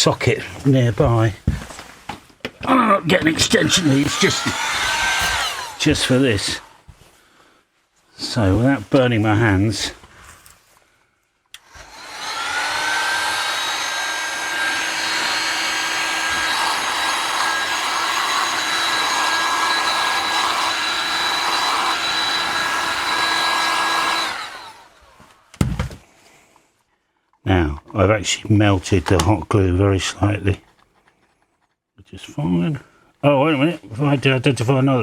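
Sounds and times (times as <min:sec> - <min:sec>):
hot air gun fan whine: 0:03.3 - 0:06.8, 0:11.6 - 0:25.4.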